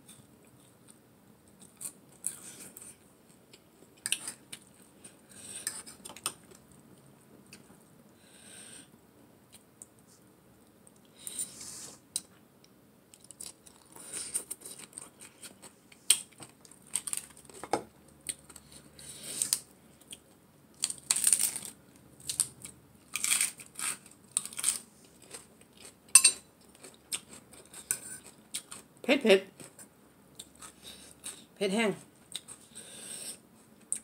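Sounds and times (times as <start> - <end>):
person chewing and crunching: 0.0 - 6.7, 13.1 - 17.6, 18.2 - 28.9, 29.6 - 31.5, 32.3 - 34.0
sharp clink: 26.2 - 26.4.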